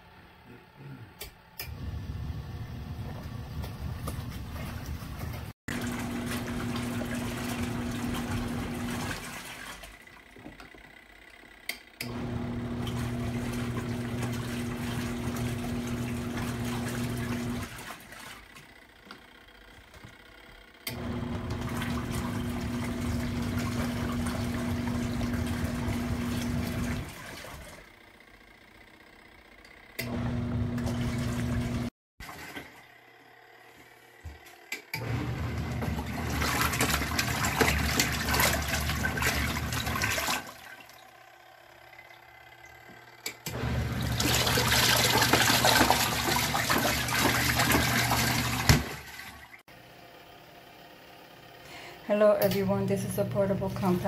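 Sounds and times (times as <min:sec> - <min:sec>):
washing machine motor humming: 0:00.0 - 0:54.0
water sloshing in tub: 0:03.1 - 0:10.3, 0:12.8 - 0:18.8, 0:21.4 - 0:27.9, 0:30.8 - 0:32.9, 0:35.6 - 0:41.2, 0:43.9 - 0:49.6.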